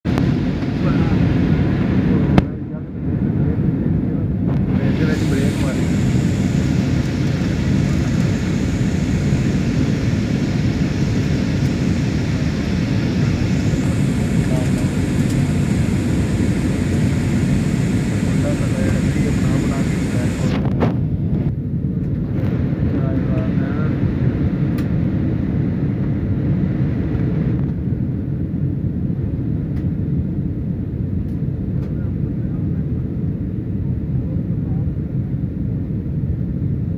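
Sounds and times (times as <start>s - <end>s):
airliner cabin engine rumble: 0.1s - 36.9s
high hiss: 4.8s - 20.5s.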